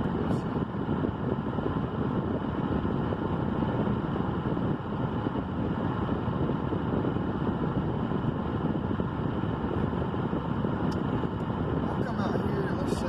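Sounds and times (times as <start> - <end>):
low unpitched rumble: 0.0 - 13.0.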